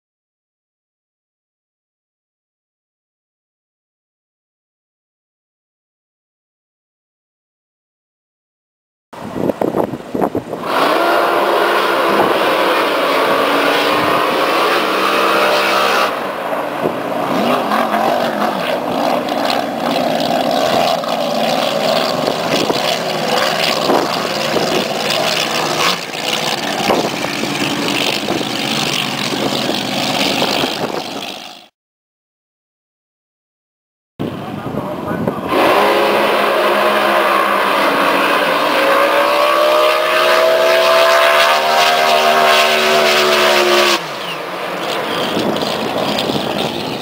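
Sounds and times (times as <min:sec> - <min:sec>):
racing boat engines: 0:09.2 - 0:31.7, 0:34.2 - 0:47.0.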